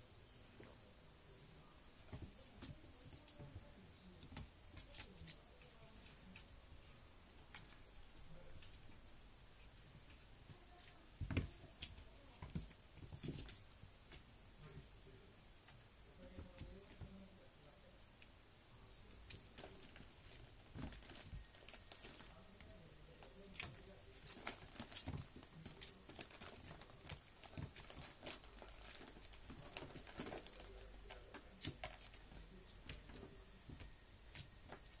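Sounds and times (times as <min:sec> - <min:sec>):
kitten paws scrabbling and tapping: 0:19.2 - 0:35.0.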